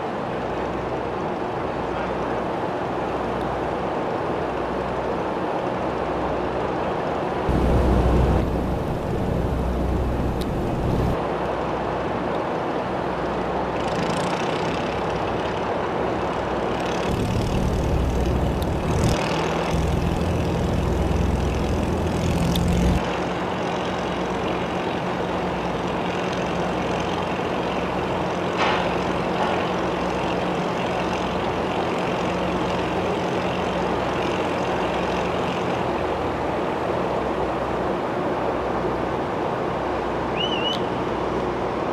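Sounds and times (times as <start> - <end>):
diesel engine running: 7.5 - 11.2, 17.1 - 23.0.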